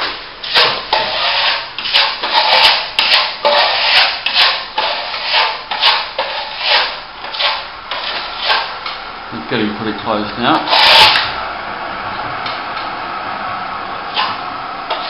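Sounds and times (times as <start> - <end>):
trowel scraping plaster: 0.4 - 9.0, 10.5 - 11.3, 14.1 - 15.0.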